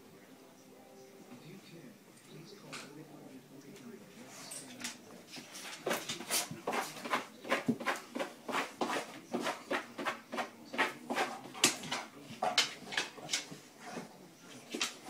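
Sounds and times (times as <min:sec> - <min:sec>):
dog claws scratching a mat: 0:05.4 - 0:15.0.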